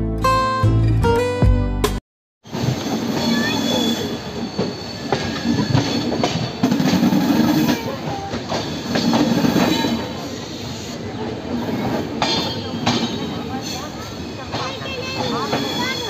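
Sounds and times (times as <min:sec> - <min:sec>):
train rumbling on rails: 0:02.4 - 0:16.0
high-pitched wheel squeals: 0:02.6 - 0:06.6, 0:12.3 - 0:16.0
wheels clacking over rail joints: 0:11.6 - 0:16.0.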